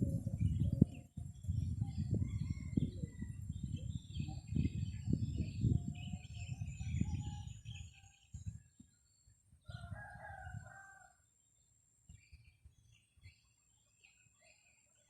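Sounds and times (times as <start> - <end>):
wind buffeting microphone: 0.0 - 10.8
faint bird chirps: 0.0 - 11.0.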